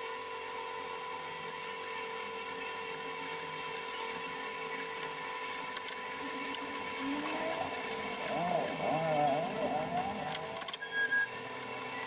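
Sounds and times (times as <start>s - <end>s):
small electric motor whining: 5.9s - 12.0s.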